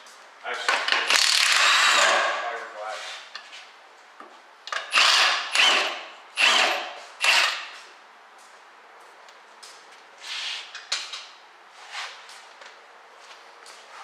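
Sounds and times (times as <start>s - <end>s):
power tool bursts: 1.1s - 2.3s, 4.8s - 7.8s.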